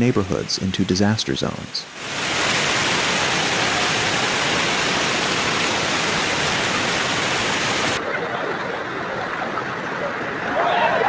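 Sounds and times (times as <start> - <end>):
dull water sound: 0.0 - 8.0
loud rushing water: 0.0 - 8.0.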